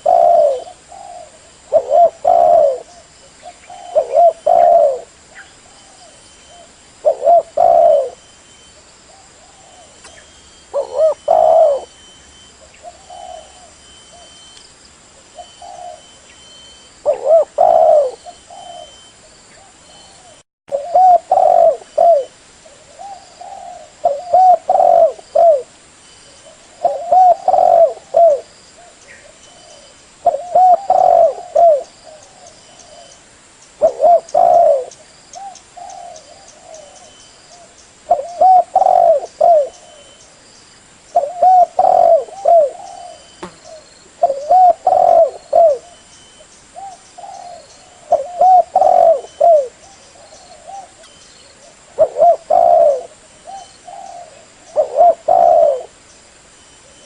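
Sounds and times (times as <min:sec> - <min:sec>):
dove cooing: 0:00.0 - 0:14.4, 0:15.2 - 0:25.7, 0:26.3 - 0:33.2, 0:33.8 - 0:40.2, 0:41.2 - 0:56.0
faint high chirps: 0:09.6 - 0:17.2.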